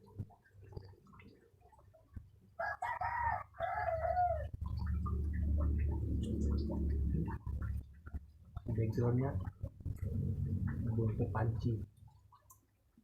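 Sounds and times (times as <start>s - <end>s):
rooster crowing: 2.6s - 4.5s
steady low rumble: 4.5s - 11.8s.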